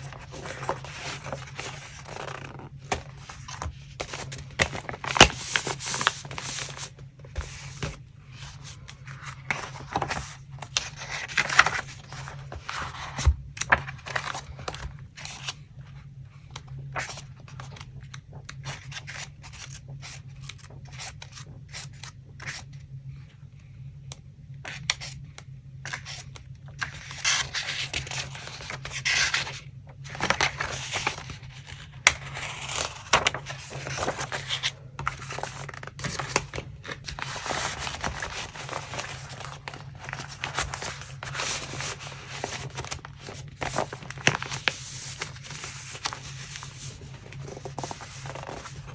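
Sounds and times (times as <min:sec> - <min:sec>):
paper rustling and scraping: 0:00.0 - 0:15.6, 0:25.9 - 0:48.9
faint low hum: 0:00.0 - 0:48.9.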